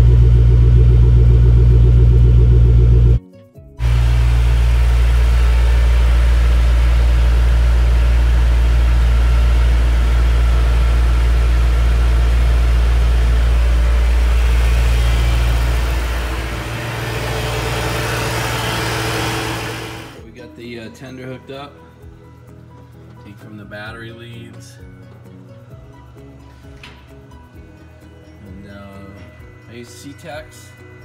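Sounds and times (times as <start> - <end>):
car engine idling: 0.0 - 3.2, 3.8 - 20.2.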